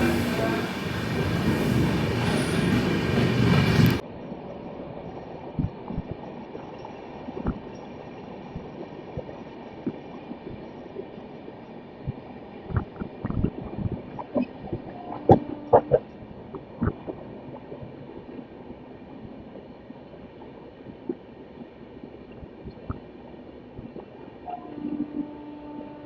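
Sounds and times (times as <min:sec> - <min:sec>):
loud train running noise: 0:00.0 - 0:04.8.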